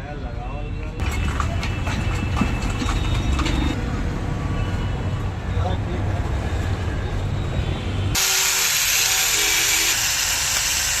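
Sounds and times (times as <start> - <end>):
angle grinder running: 8.2 - 11.0.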